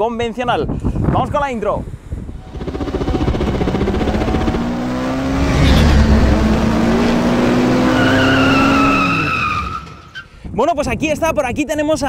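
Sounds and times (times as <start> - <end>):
sports car engine revving: 2.4 - 9.3
high tyre squeal: 7.6 - 10.3.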